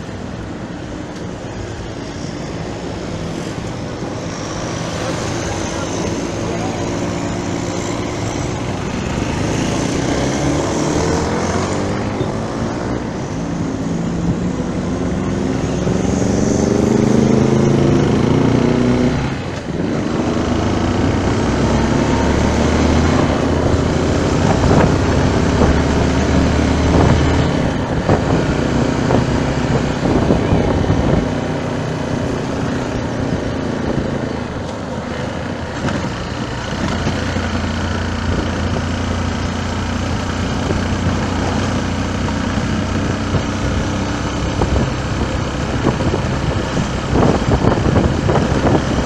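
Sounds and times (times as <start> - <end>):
vehicle engine running: 0.0 - 18.7, 19.3 - 49.0
wind noise: 0.0 - 49.0.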